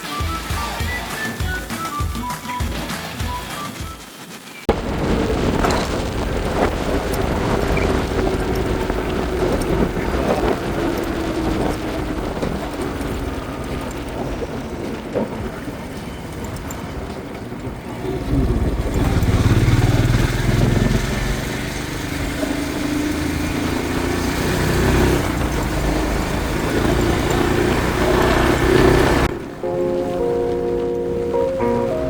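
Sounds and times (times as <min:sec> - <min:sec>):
road and wind noise: 0:04.6 - 0:32.0
motorcycle engine running: 0:04.8 - 0:29.4.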